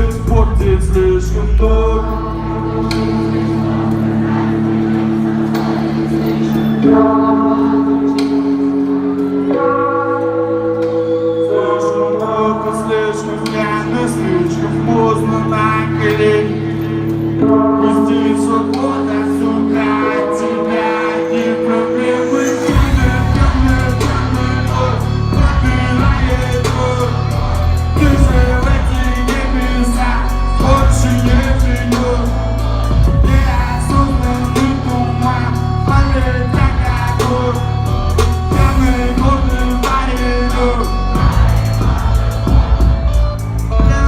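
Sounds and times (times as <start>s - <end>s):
steady drum beat: 0.0s - 1.2s, 22.7s - 44.0s
guitar: 0.0s - 44.0s
heavy bass line: 0.0s - 44.0s
live band playing: 0.0s - 44.0s.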